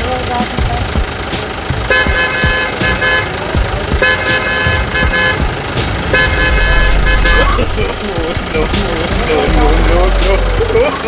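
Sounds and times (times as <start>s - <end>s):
vehicle horn blasts: 1.9s - 3.4s, 4.0s - 7.6s
low steady rumble: 5.5s - 10.2s.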